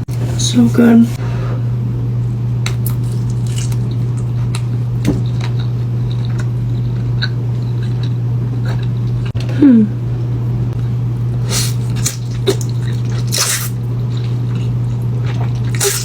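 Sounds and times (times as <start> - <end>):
steady low hum: 0.0 - 16.0
quiet chewing: 2.7 - 9.4, 11.4 - 16.0.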